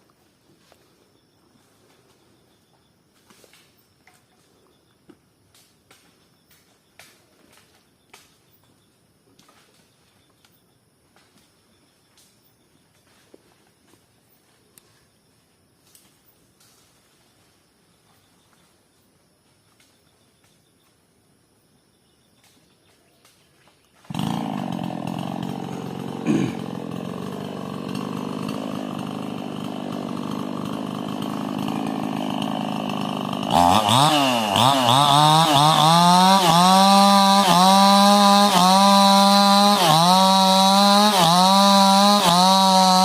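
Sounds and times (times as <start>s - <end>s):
chainsaw running: 24.0s - 43.0s.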